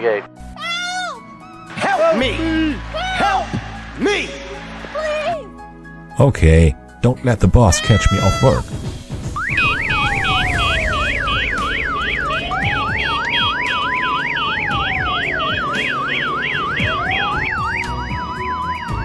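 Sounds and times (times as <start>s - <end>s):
rapid high beeping: 9.4s - 19.0s
toy police siren: 9.4s - 19.0s.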